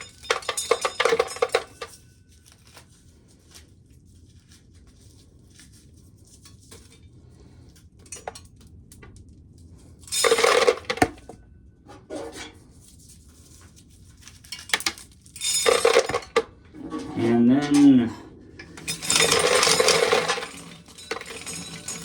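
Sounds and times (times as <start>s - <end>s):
corn kernels rattling in metal container: 0.0s - 1.9s, 10.1s - 11.2s, 14.4s - 22.0s.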